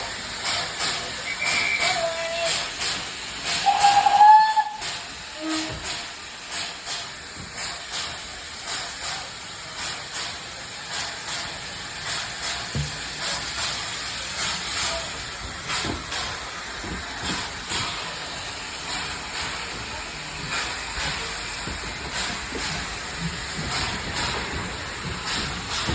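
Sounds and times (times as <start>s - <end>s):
locomotive chuffing: 0.0s - 25.9s
steam hissing: 0.0s - 25.9s
steam locomotive whistle: 1.2s - 2.7s, 3.6s - 5.8s.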